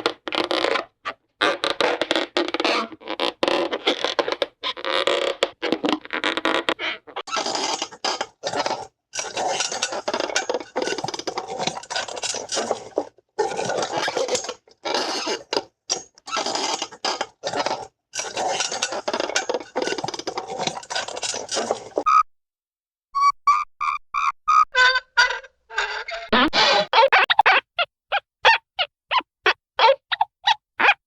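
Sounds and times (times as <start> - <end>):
cartoon rattling clatter and scraping: 7.2 - 22.0.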